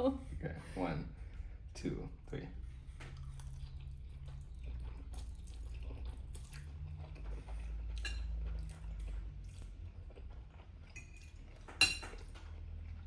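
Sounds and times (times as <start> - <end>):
low steady hum: 0.0 - 13.0
chewing and mouth sounds: 2.7 - 13.0.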